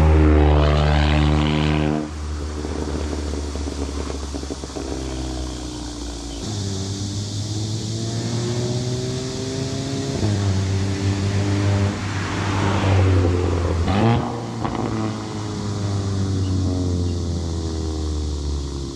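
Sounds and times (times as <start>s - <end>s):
car engine accelerating: 0.0s - 18.9s.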